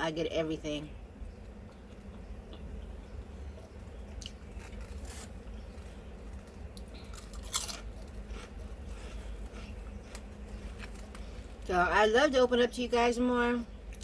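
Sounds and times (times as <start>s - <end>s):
low hum: 0.0s - 14.0s
person chewing crunchy food: 3.6s - 11.5s.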